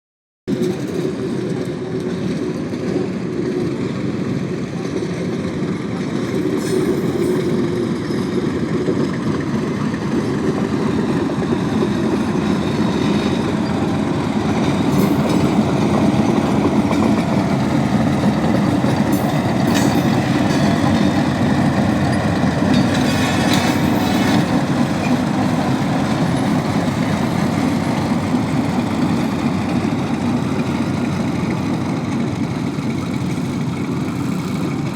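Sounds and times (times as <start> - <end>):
sharp clacks of train wheels: 0.5 - 34.9
train wheels rumbling on track: 0.5 - 34.9.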